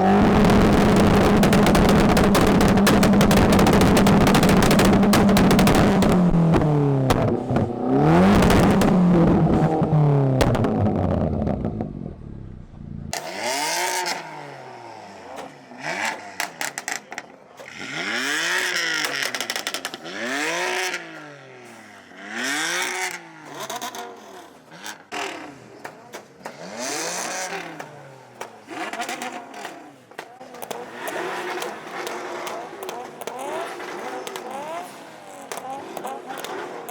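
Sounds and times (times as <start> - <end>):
car engine revving: 0.0 - 36.9.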